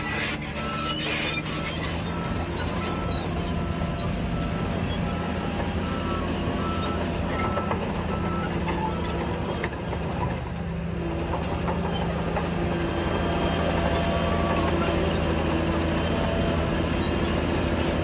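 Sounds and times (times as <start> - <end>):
diesel engine running: 0.0 - 18.0
reverse alarm beeping: 2.0 - 9.8.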